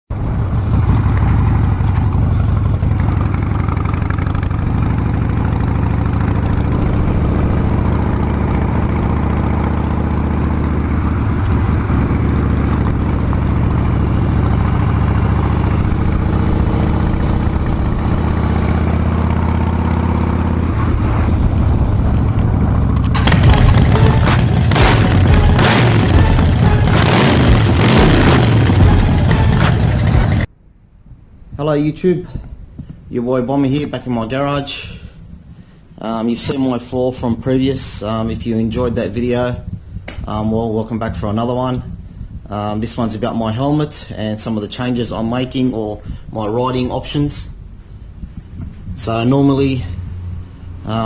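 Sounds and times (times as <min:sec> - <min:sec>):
motorcycle engine running: 0:00.1 - 0:30.5
louder sound: 0:03.3 - 0:30.8.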